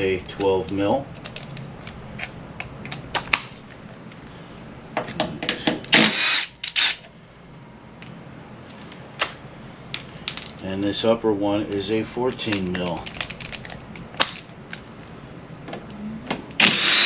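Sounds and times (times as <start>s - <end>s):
rasping bursts: 6.0s - 7.0s, 16.6s - 17.0s.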